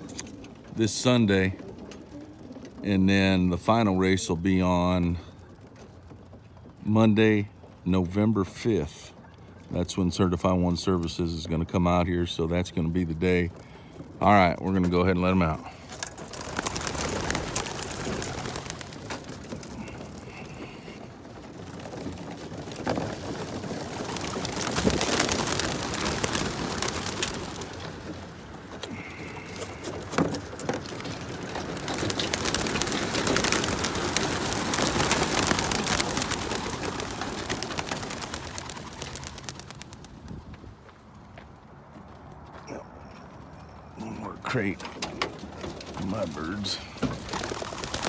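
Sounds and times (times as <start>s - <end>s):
pigeon wings clattering: 0.0s - 0.8s, 15.3s - 40.6s, 44.6s - 48.0s.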